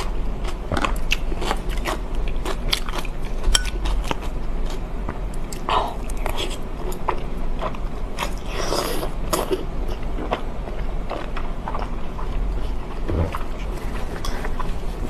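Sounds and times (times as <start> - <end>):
chewing food: 0.0 - 15.0.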